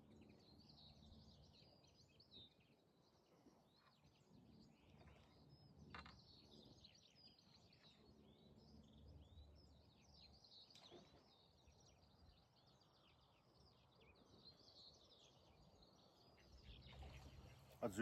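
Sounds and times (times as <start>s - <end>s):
birds chirping and trilling: 3.7s - 18.0s.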